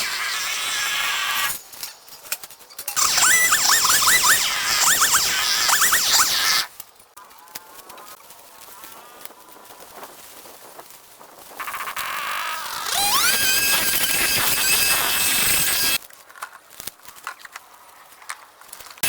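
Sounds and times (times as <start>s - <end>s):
power tool motor whining: 3.0s - 6.7s, 12.0s - 16.0s.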